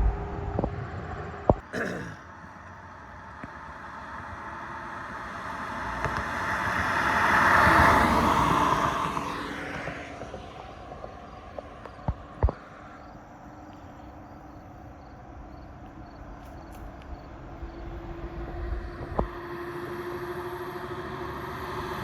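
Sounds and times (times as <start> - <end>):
vehicle passing on highway: 0.0 - 1.6, 2.9 - 14.3, 15.2 - 22.0.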